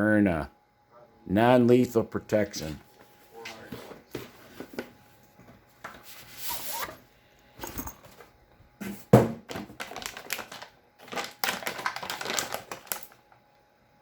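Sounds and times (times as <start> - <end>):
packaging rustling and sliding: 9.8 - 13.2.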